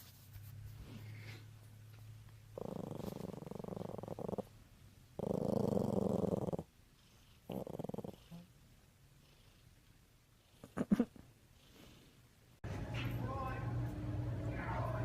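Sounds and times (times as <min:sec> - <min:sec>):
cat purring: 0:02.4 - 0:12.3.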